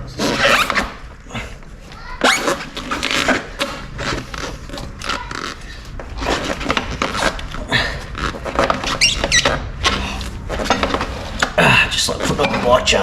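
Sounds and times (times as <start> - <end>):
drive belt scraping and knocking: 0.0 - 1.1, 2.2 - 13.0
short high squeaks: 2.0 - 7.2, 8.8 - 10.8.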